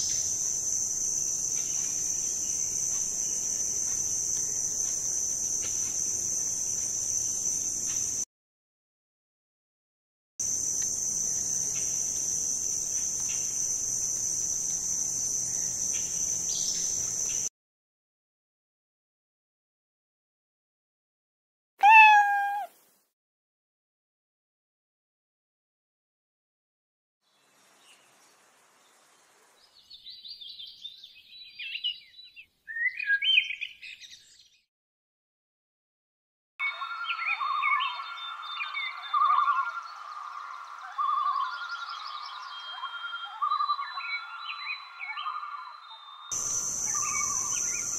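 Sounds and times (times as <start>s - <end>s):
crickets chirping: 0.0s - 8.3s, 10.4s - 17.5s, 36.6s - 47.9s
faint short chirps: 21.8s - 22.7s
starlings chattering: 46.3s - 47.9s.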